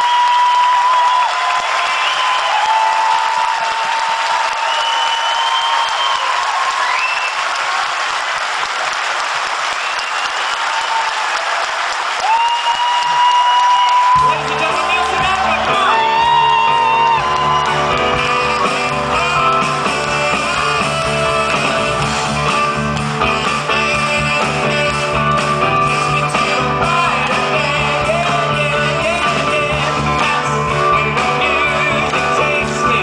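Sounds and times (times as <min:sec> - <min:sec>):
live band playing upbeat music: 0:13.0 - 0:33.0
people singing: 0:18.0 - 0:33.0.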